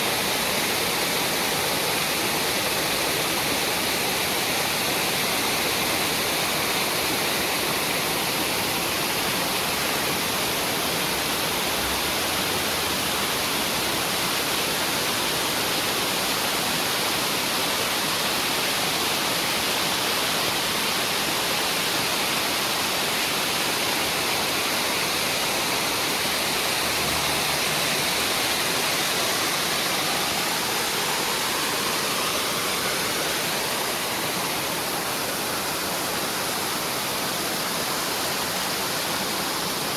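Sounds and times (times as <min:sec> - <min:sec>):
steady rushing noise: 0:22.2 - 0:39.9.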